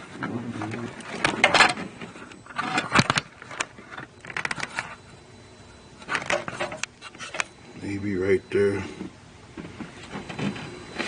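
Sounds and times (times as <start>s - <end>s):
camera handling scraping and rustling: 1.0s - 5.1s, 6.0s - 7.6s.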